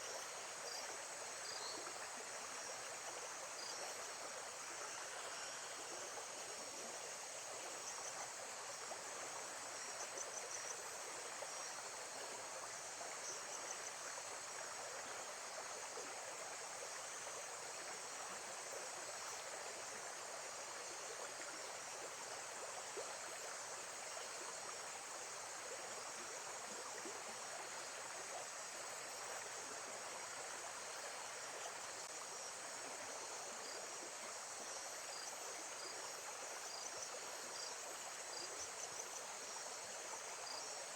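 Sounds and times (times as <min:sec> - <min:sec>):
insects chirring: 0:34.4 - 0:40.9.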